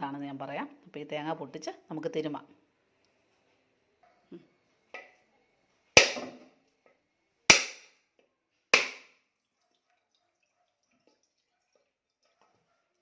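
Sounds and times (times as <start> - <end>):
coconut shell being struck: 6.0 - 6.4, 7.5 - 8.0, 8.8 - 9.2.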